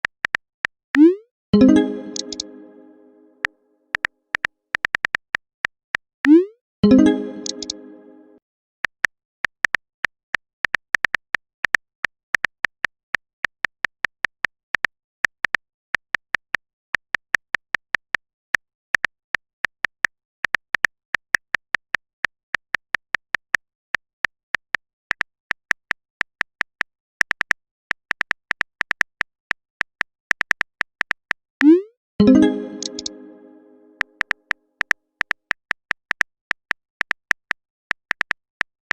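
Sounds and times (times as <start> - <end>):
phone keyboard typing clicks: 1.6 - 2.7, 6.8 - 8.0, 32.2 - 34.0.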